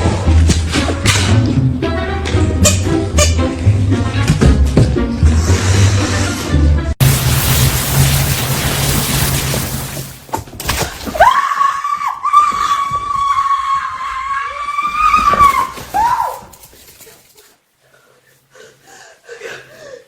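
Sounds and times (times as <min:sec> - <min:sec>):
music: 0:00.0 - 0:07.0
high-pitched scream: 0:11.2 - 0:16.5.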